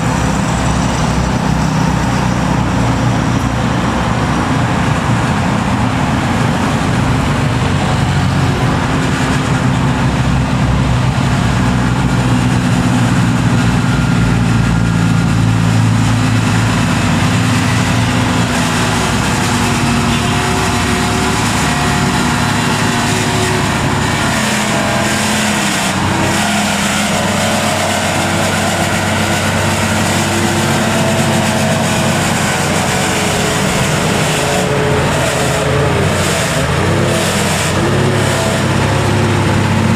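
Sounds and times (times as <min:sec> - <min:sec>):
heavy truck engine running: 0:00.0 - 0:39.9.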